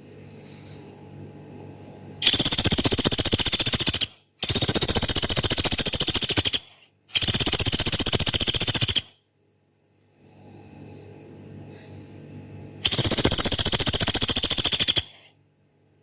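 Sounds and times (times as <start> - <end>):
woodpecker rattling calls: 2.2 - 9.1, 12.9 - 15.2.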